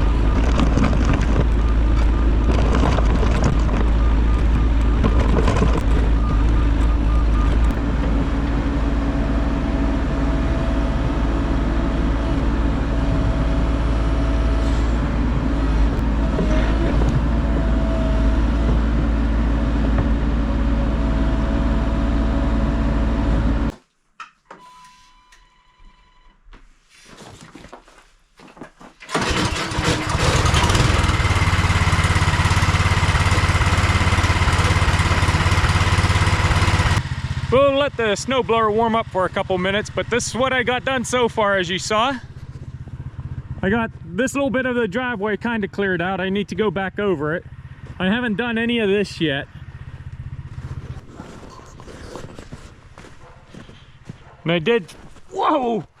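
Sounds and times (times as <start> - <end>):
heavy machine engine running: 0.0 - 23.7, 29.1 - 44.5.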